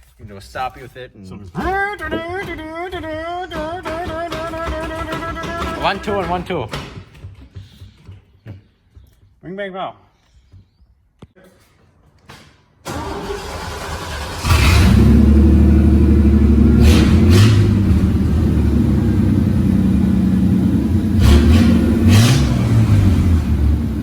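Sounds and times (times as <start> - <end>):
truck engine revving: 12.9 - 24.0.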